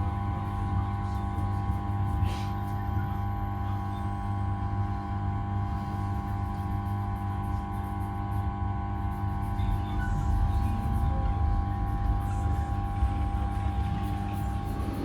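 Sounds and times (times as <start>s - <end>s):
electric train hum: 0.0s - 15.0s.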